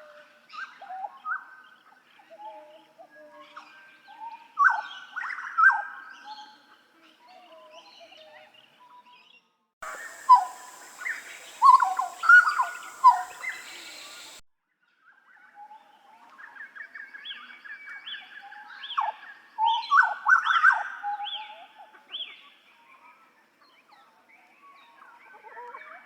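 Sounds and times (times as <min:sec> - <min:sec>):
bird singing whistled notes: 0:09.8 - 0:14.4.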